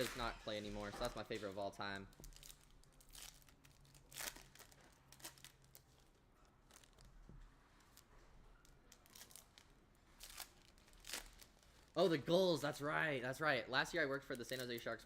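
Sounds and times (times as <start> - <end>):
trading cards crinkling and clicking: 0.0 - 12.2, 14.2 - 15.0
sharp crackles: 1.3 - 12.6.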